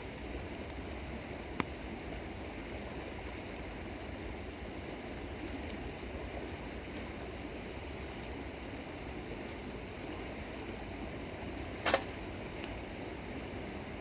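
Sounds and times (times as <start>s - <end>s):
river water flowing: 0.0s - 14.0s
sharp crack: 11.8s - 12.1s.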